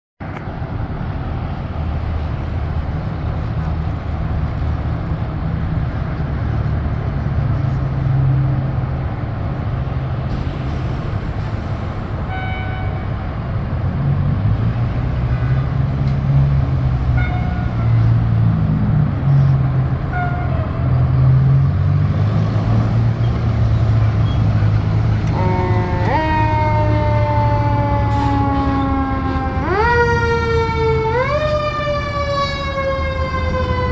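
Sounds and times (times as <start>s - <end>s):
truck engine rumbling: 0.2s - 33.9s
siren wailing: 25.1s - 33.9s
short siren blips: 25.2s - 33.9s.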